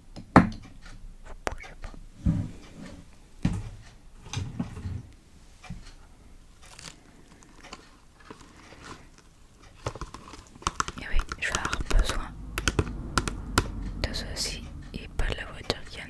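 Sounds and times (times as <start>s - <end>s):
soft taps and clicks: 10.6s - 15.8s
low thumps: 11.0s - 16.0s.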